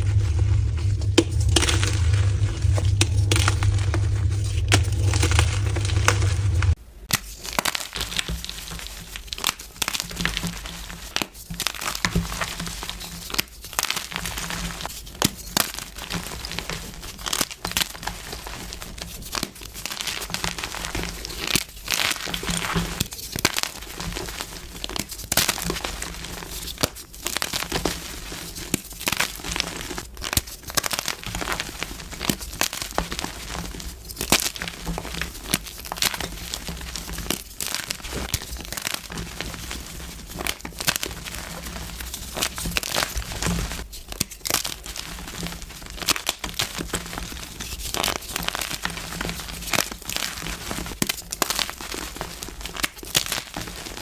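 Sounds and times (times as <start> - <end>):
loud steady low hum: 0.0 - 6.8
chalk blocks crunching by hand: 0.0 - 54.0.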